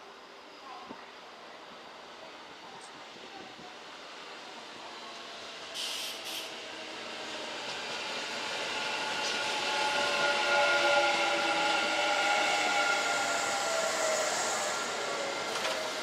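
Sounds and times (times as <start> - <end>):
electric train approaching: 3.8 - 16.0
short hissy bursts: 5.8 - 6.6.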